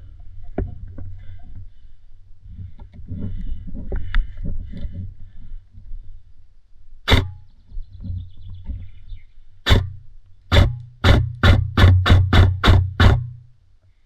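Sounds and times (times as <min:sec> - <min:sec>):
airsoft gun shots: 0:07.1 - 0:07.4, 0:09.7 - 0:13.4
gearbox whir: 0:07.1 - 0:07.4, 0:09.7 - 0:13.5.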